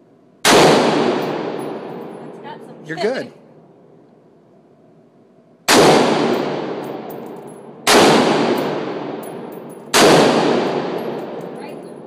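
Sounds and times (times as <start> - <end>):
rifle gunshots echoing: 0.4 - 2.4, 5.7 - 12.0
faint metallic clinks: 6.9 - 7.7, 9.2 - 9.9, 11.0 - 12.0.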